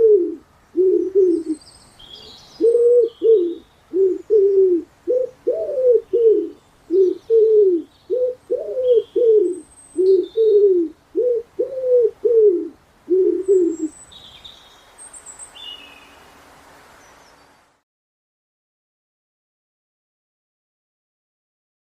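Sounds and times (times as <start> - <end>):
dove cooing: 0.0 - 1.6, 2.2 - 13.9
small birds chirping faintly: 0.2 - 17.8.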